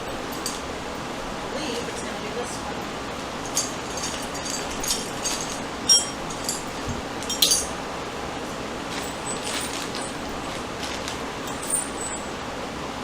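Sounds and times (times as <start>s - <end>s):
small metal hardware clinking: 0.0s - 0.7s, 3.3s - 7.8s, 8.9s - 12.3s
steady background hiss: 0.0s - 13.0s.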